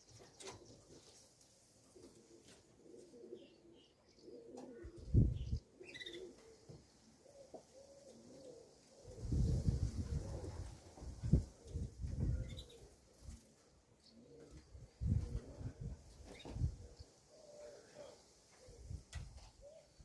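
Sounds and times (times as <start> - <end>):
pigeons cooing: 1.8 - 20.0
faint small bird chirps: 5.4 - 6.3, 12.4 - 12.8.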